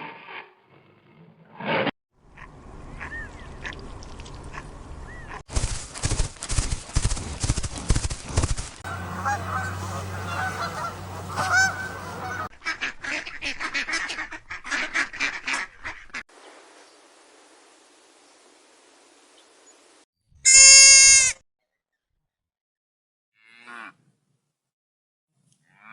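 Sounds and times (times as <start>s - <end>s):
geese honking: 8.8s - 16.2s
faint hiss: 16.4s - 20.0s.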